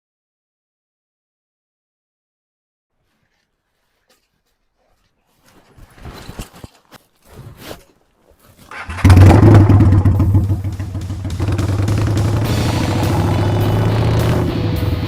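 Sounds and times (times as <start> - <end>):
motorcycle engine starting and idling: 8.7 - 15.0.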